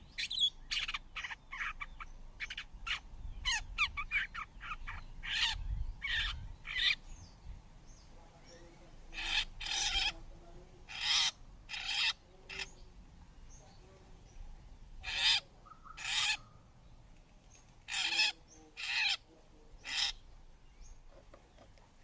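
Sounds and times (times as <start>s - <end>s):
birds harsh screech calls: 0.0s - 8.0s, 9.1s - 10.2s, 10.8s - 12.8s, 15.0s - 16.8s, 17.5s - 21.0s.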